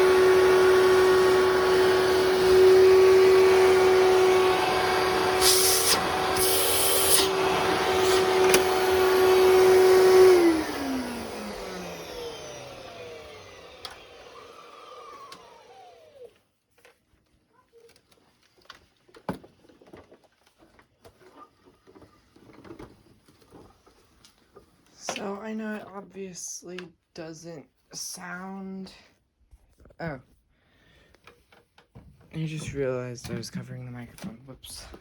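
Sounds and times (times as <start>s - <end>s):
vacuum cleaner motor whining: 0.0s - 16.4s.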